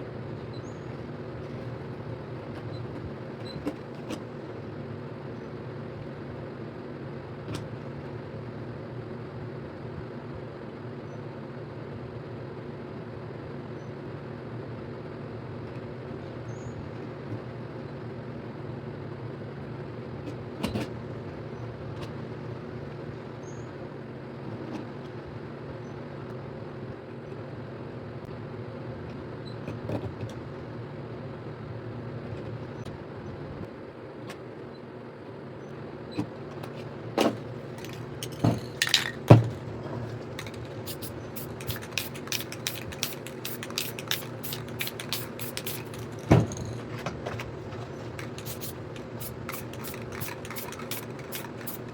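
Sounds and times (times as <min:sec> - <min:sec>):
low mechanical hum: 0:00.0 - 0:51.9
clicks of small objects handled: 0:36.6 - 0:51.9.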